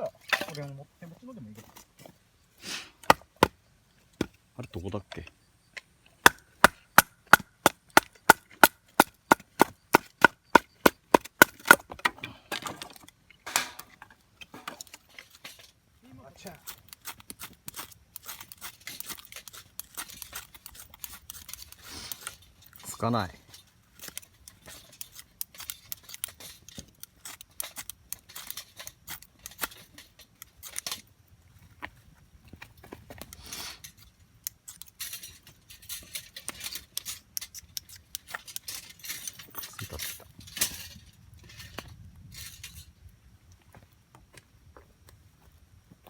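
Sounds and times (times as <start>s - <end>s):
sticks rustling: 6.1s - 31.1s.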